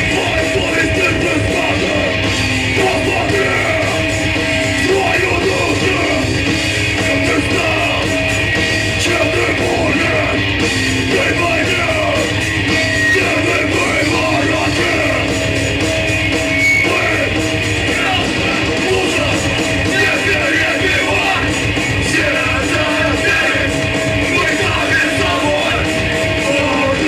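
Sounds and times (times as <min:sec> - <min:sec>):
shouted vocals: 0:00.0 - 0:06.4, 0:11.1 - 0:15.4, 0:16.7 - 0:27.0
punk band playing live: 0:00.0 - 0:27.0.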